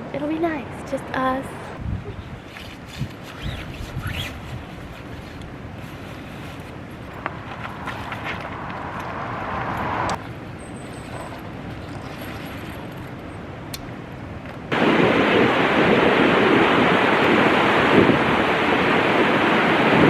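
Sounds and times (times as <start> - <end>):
wind on microphone: 1.5 - 10.2, 14.7 - 20.0
ocean surf rushing: 6.8 - 10.2, 14.7 - 20.0.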